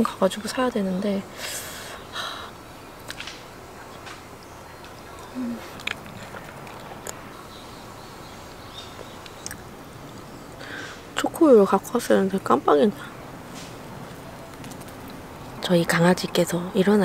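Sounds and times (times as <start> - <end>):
soft chewing of bread: 4.8 - 7.2
mouth clicks: 9.2 - 9.7.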